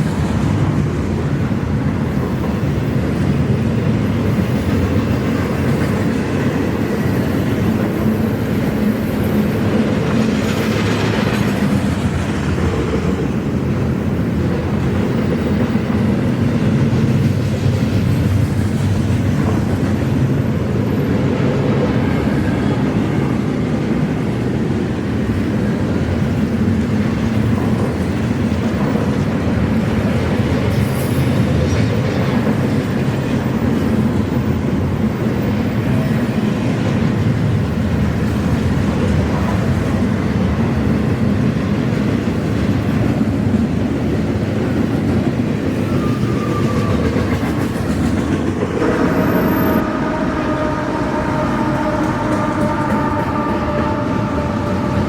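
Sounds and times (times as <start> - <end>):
train cars rumbling on rails: 0.0 - 55.0.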